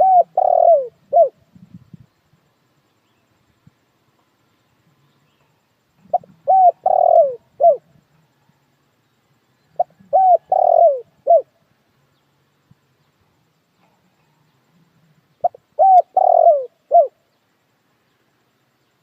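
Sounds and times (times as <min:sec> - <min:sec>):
dove cooing: 0:00.0 - 0:01.6, 0:06.0 - 0:08.1, 0:09.7 - 0:11.6, 0:13.8 - 0:17.2.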